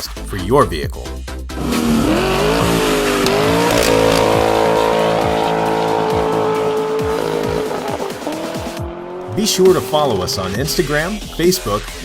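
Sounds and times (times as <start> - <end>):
car engine at high revs: 1.5 - 11.4
tire squeal: 1.6 - 10.7.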